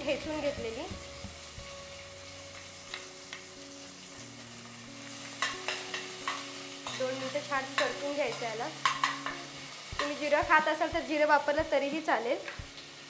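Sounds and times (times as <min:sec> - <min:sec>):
chillies sizzling in hot ghee: 0:00.0 - 0:13.0
steel spoon scraping pan: 0:05.4 - 0:10.2.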